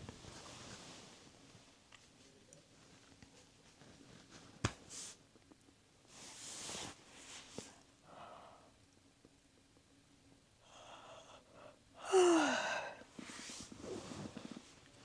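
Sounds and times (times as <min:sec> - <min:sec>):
woman breathing in deeply: 0:10.6 - 0:14.4
woman sighing: 0:10.8 - 0:13.0.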